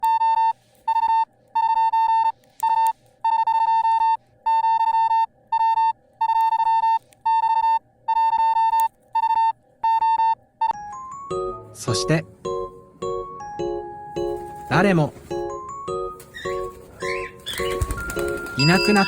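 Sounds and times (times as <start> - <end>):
morse code beeps: 0.0 - 11.5.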